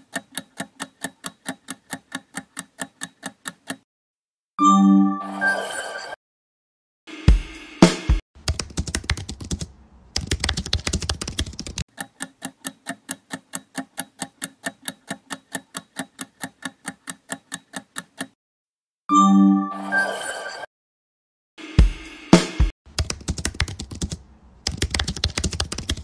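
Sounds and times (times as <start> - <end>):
keyboard typing clicks: 0.0 - 3.8, 8.5 - 18.4, 23.0 - 26.0
timer clock ticking: 0.0 - 3.9, 11.8 - 18.4.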